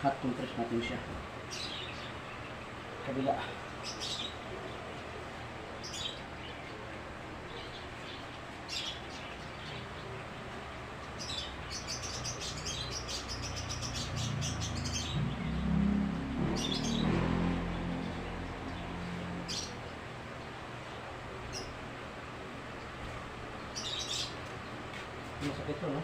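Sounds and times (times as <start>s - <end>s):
small birds chirping: 0.3s - 26.0s
low drone: 14.1s - 20.2s.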